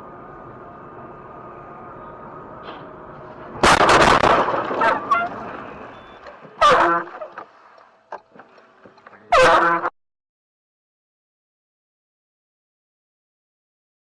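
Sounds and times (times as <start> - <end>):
road noise: 0.0 - 9.9
vehicle collision crash: 2.6 - 7.5
car horn honks: 4.8 - 7.4, 9.3 - 9.9.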